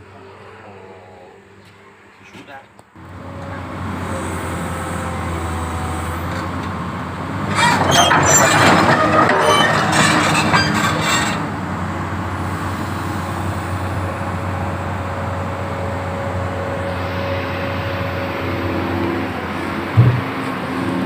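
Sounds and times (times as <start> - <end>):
excavator diesel engine running: 3.0 - 21.0.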